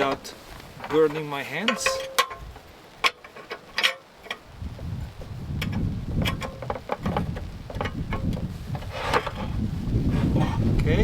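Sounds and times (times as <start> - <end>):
small metallic clicks and taps: 1.6 - 4.5, 5.6 - 8.4
wind buffeting microphone: 2.3 - 3.0, 4.3 - 11.0.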